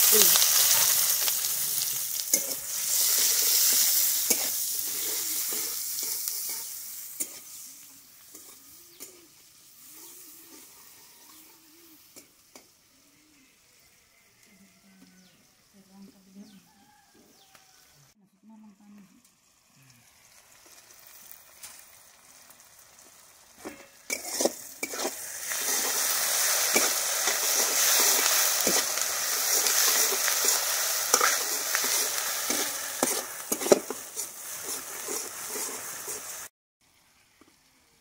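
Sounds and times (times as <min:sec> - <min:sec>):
onions sizzling in hot oil: 0:00.0 - 0:13.9, 0:19.2 - 0:38.0
metal spatula scraping a pan: 0:01.3 - 0:09.2, 0:23.6 - 0:36.5.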